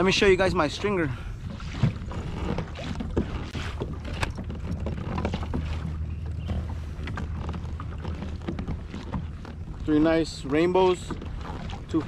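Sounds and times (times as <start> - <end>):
knocks and clicks of gear: 2.1 - 9.9.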